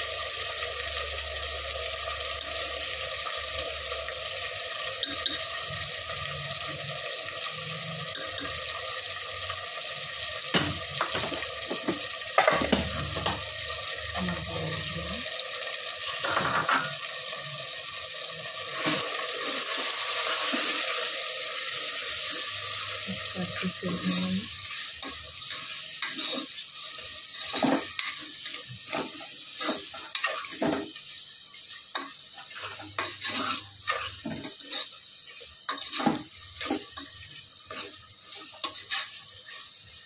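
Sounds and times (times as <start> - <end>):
meat sizzling in oil: 0.0 - 40.0
spoon stirring: 31.9 - 34.9.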